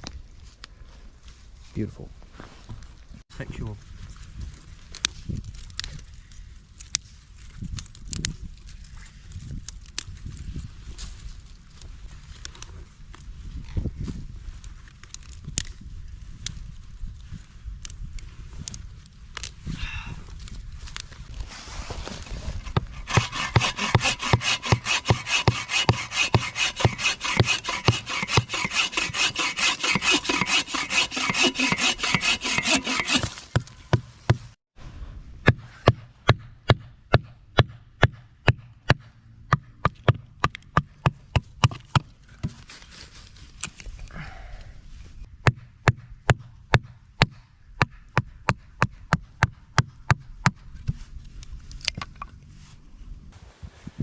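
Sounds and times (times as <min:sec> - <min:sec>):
hand saw cutting firewood: 0:21.8 - 0:34.6.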